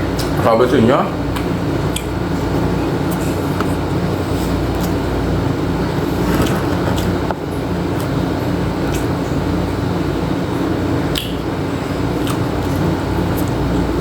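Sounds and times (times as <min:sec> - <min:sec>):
low mechanical hum: 0:00.0 - 0:14.0
person chewing: 0:01.3 - 0:05.3, 0:06.0 - 0:09.3, 0:10.5 - 0:14.0.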